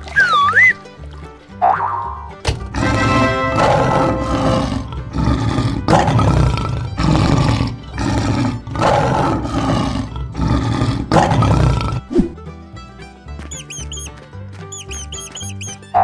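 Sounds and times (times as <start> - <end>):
lion roaring: 2.7 - 12.2.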